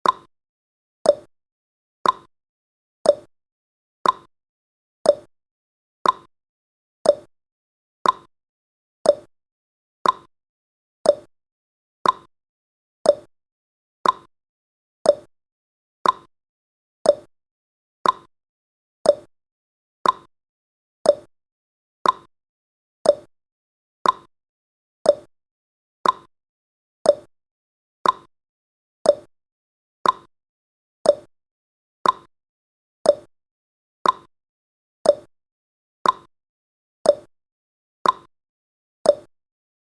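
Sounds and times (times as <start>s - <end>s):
clock-style ticking: 2.0s - 2.3s, 3.1s - 3.3s, 4.0s - 4.3s, 5.1s - 5.3s, 6.0s - 6.3s, 7.1s - 7.3s, 8.0s - 8.3s, 9.1s - 9.3s, 10.0s - 10.3s, 11.1s - 11.3s, 12.0s - 12.3s, 13.1s - 13.3s, 14.0s - 14.3s, 15.1s - 15.3s, 16.0s - 16.3s, 17.1s - 17.3s, 18.0s - 18.3s, 19.1s - 19.3s, 20.0s - 20.3s, 21.1s - 21.3s, 22.0s - 22.3s, 23.0s - 23.3s, 24.0s - 24.3s, 25.1s - 25.3s, 26.0s - 26.3s, 27.1s - 27.3s, 28.0s - 28.3s, 29.1s - 29.3s, 30.0s - 30.3s, 31.1s - 31.3s, 32.0s - 32.3s, 33.1s - 33.3s, 34.0s - 34.3s, 35.1s - 35.3s, 36.0s - 36.3s, 37.1s - 37.3s, 38.0s - 38.3s, 39.1s - 39.3s.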